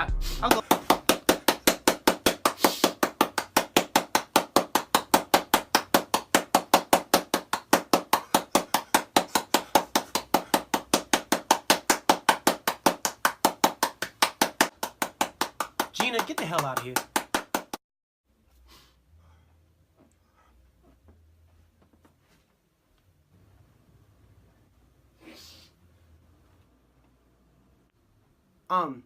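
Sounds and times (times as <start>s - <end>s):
rapid sharp knocking: 0.4s - 17.8s.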